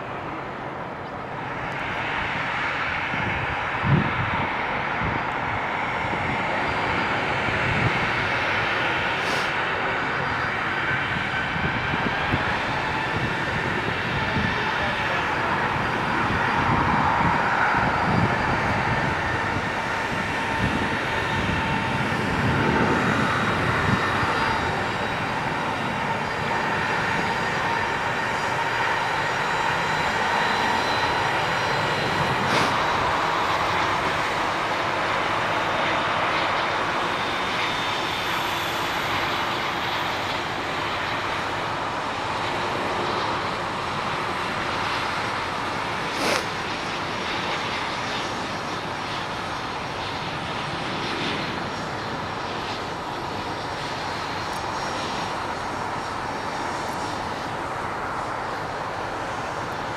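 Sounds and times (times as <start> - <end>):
jet engines roaring with whine: 0.0 - 59.9.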